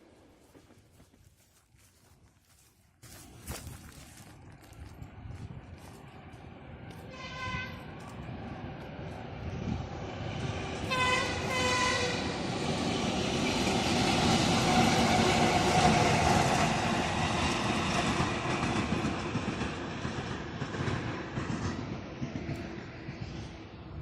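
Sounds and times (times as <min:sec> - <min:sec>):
train wheels on rails: 0:00.0 - 0:24.0
train horn blasts: 0:07.1 - 0:07.9, 0:10.8 - 0:12.4.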